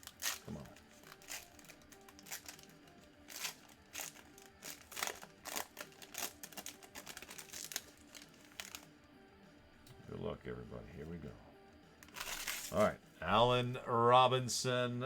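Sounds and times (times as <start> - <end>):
wrapper crinkling: 0.0 - 8.9, 12.0 - 12.9
quiet background music: 0.0 - 15.0.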